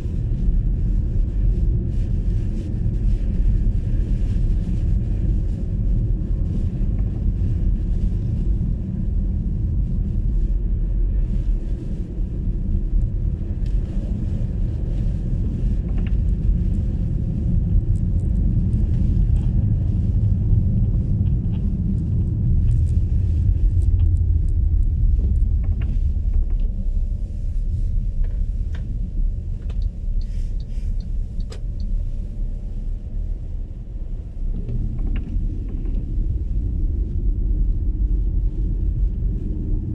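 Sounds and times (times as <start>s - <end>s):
tyres rumbling on snowy road: 0.0s - 39.9s
faint ticks and taps: 29.6s - 31.9s.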